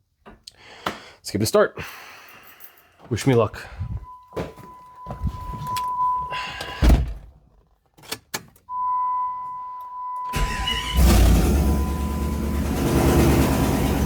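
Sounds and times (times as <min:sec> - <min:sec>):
vehicle warning beep: 0:03.6 - 0:06.8, 0:08.7 - 0:13.9
thump: 0:06.8 - 0:07.3
engine cranking and starting: 0:10.3 - 0:14.0.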